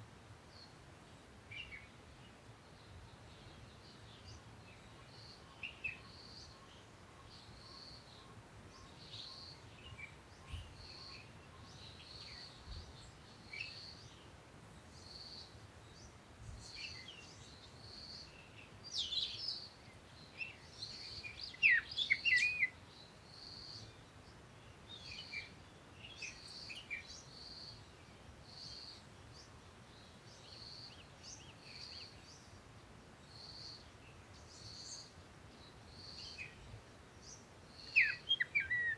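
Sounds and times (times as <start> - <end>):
birds chirping: 15.0 - 38.9.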